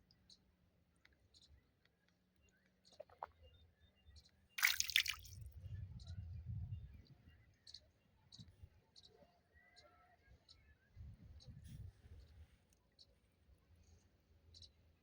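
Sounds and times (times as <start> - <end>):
water splash: 4.6 - 5.4.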